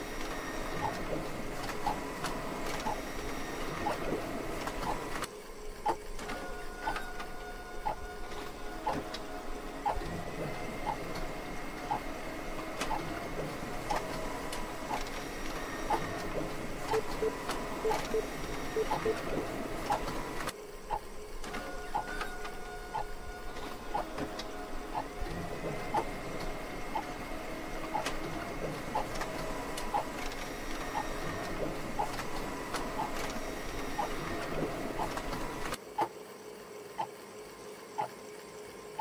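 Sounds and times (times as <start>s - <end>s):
mechanical hum: 0.0s - 39.0s
clock ticking: 16.9s - 19.2s.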